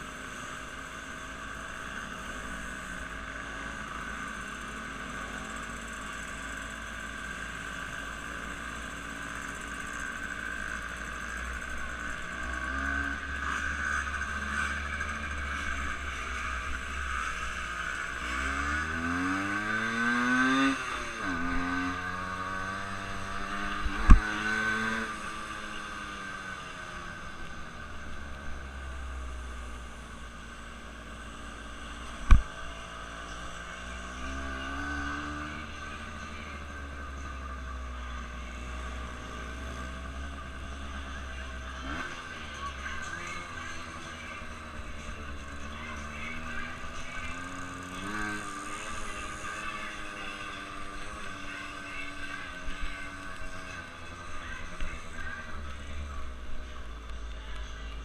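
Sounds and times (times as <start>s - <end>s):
engine running and revving: 0.0s - 58.0s.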